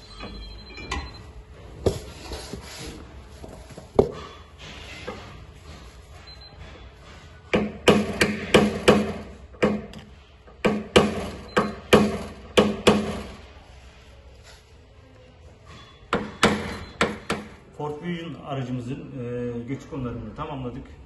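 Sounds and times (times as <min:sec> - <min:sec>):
hammer tapping on car body panel: 0:07.6 - 0:10.0.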